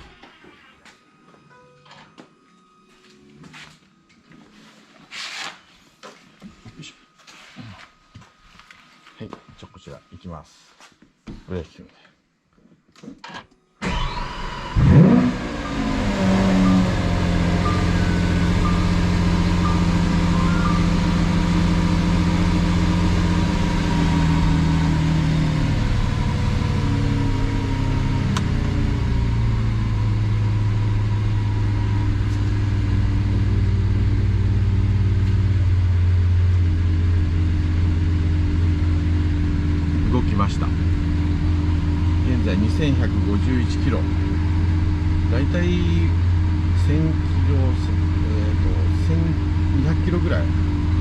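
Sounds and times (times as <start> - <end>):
car engine starting and idling: 13.2 - 51.0.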